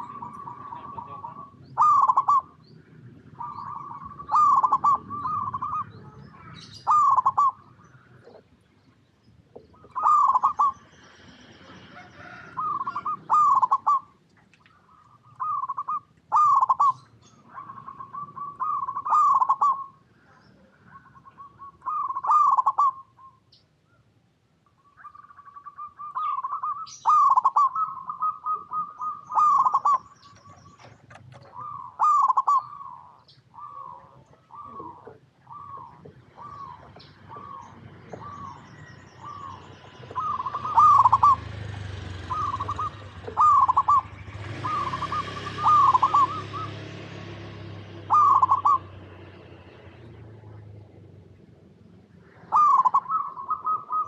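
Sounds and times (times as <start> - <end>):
dove cooing: 0.0 - 8.6, 9.4 - 23.4, 24.9 - 51.1, 52.1 - 54.0.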